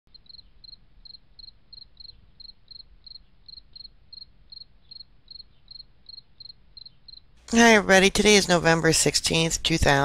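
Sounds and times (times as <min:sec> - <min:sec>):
cricket chirping: 0:00.1 - 0:07.4
faint low hum: 0:00.1 - 0:10.0.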